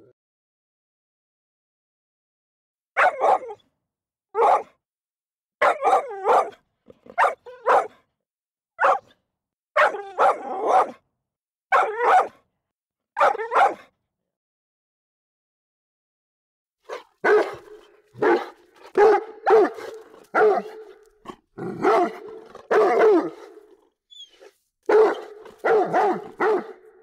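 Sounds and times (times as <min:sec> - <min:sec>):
dog barking: 0:03.0 - 0:03.6, 0:04.4 - 0:04.8, 0:05.6 - 0:08.0, 0:08.8 - 0:09.2, 0:09.8 - 0:11.0, 0:11.7 - 0:12.4, 0:13.2 - 0:13.9, 0:16.9 - 0:27.0.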